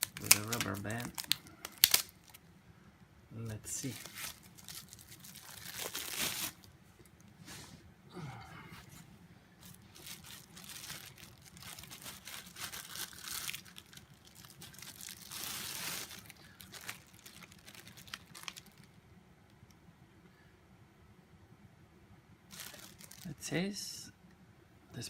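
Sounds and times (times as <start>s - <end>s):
packaging crinkling and tearing: 0.0s - 2.4s, 3.7s - 7.3s, 9.6s - 19.0s, 22.5s - 23.4s.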